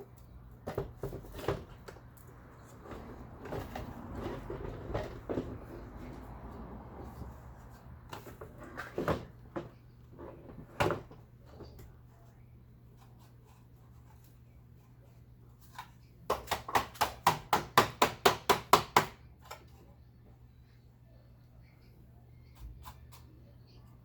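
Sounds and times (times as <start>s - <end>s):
knocks of plastic parts: 16.3s - 19.2s
faint low hum: 19.2s - 24.0s.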